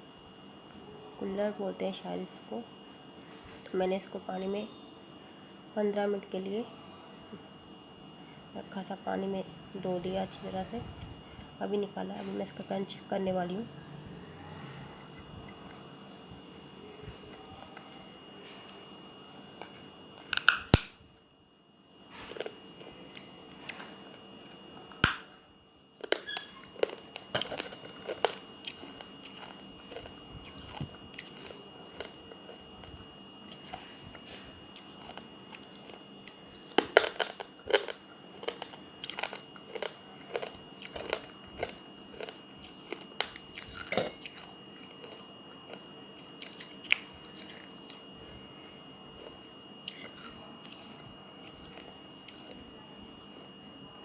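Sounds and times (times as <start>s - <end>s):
clay cup cracking: 18.6s - 21.0s, 22.2s - 25.4s, 26.0s - 48.0s
crunching bites: 19.2s - 21.0s, 23.2s - 25.4s, 26.0s - 48.1s.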